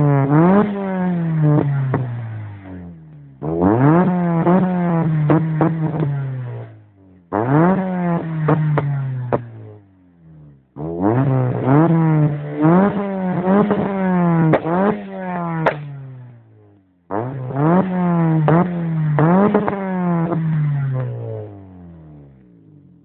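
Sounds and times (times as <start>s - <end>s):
car engine revving: 0.0s - 23.0s
exhaust backfire pops: 0.0s - 23.0s.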